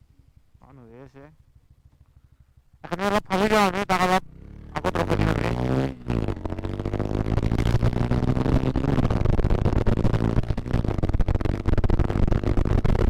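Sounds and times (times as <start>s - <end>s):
motorcycle engine running: 0.0s - 13.0s
rough rushing noise: 4.7s - 13.0s.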